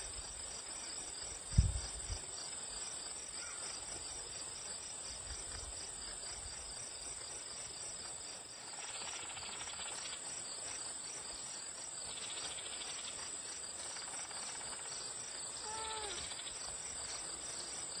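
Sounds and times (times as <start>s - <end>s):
insects fast pulsing chirp: 0.1s - 18.0s
insects high trill: 14.0s - 18.0s.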